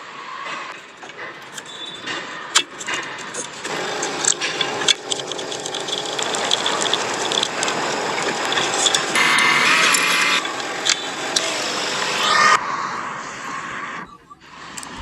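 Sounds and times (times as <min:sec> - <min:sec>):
steady machine running noise: 0:00.0 - 0:15.0
sharp mechanical clicks: 0:01.0 - 0:12.2.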